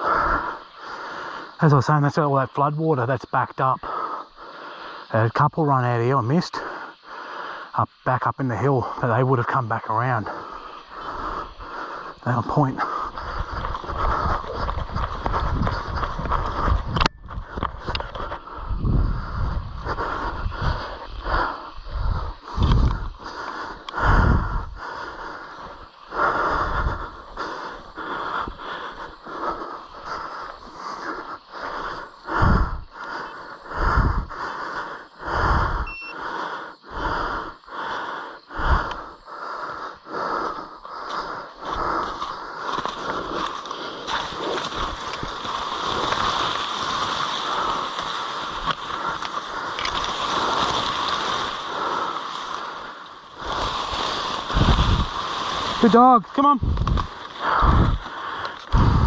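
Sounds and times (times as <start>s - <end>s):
man breathing hard: 0.0s - 1.6s, 3.8s - 5.2s, 6.5s - 8.0s, 9.9s - 59.0s
rushing rustling noise: 13.0s - 17.0s, 42.0s - 59.0s
low footstep thumps: 13.1s - 18.4s.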